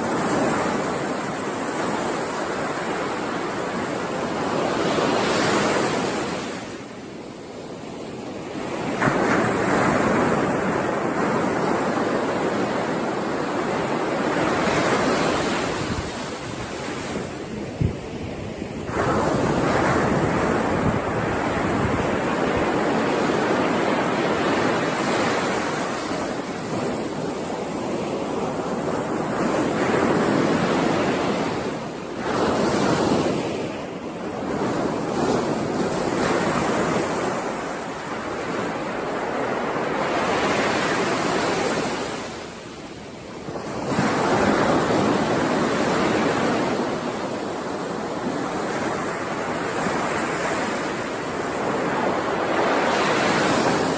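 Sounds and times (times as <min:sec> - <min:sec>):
ocean waves washing onto shore: 0:00.0 - 0:53.9.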